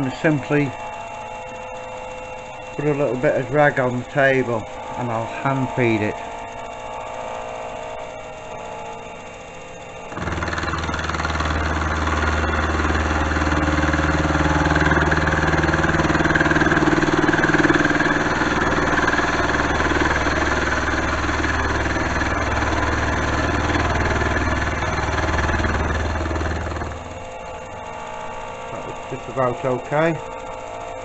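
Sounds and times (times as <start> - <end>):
milling machine hum: 2.5 - 30.8
end mill cutting steel: 10.1 - 27.2.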